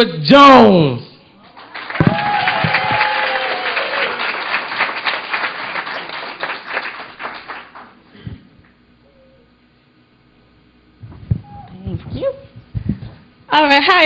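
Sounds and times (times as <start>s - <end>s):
audience clapping: 1.4s - 8.0s.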